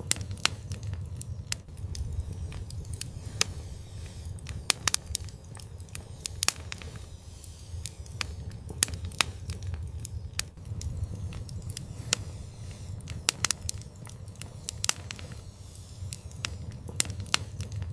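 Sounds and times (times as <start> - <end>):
fire crackling and popping: 0.0 - 17.9
low rumble of flames: 0.0 - 17.9.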